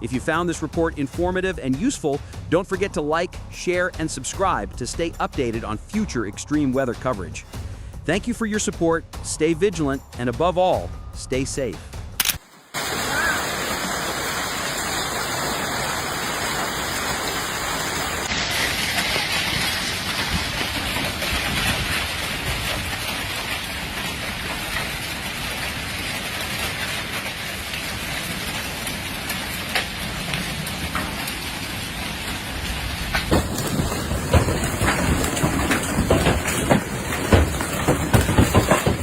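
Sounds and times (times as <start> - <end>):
heavy rain pouring: 12.4 - 39.0
sharp knocks: 33.1 - 39.0.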